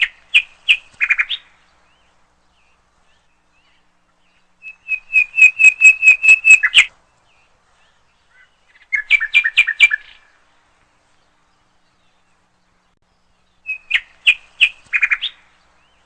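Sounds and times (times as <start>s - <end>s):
songbird whistled notes: 4.6s - 6.9s, 13.6s - 15.4s
two-pitched bird trill: 4.6s - 6.9s.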